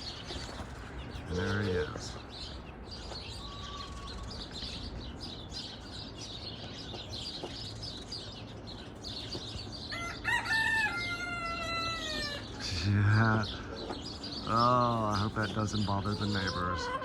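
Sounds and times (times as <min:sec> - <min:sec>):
small birds chirping: 0:00.0 - 0:17.0
rooster crowing: 0:09.9 - 0:12.5.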